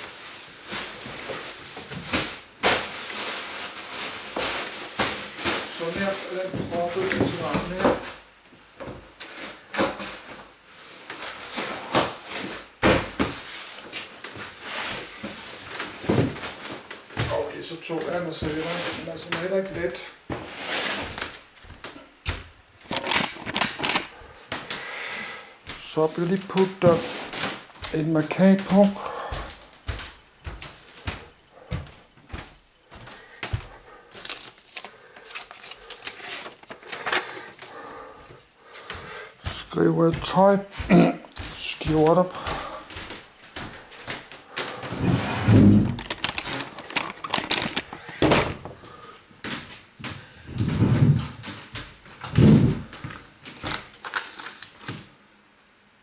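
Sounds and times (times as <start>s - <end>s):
clothes rustling in a box: 0.0s - 8.2s
sticker rustling: 34.1s - 37.4s, 45.1s - 48.5s.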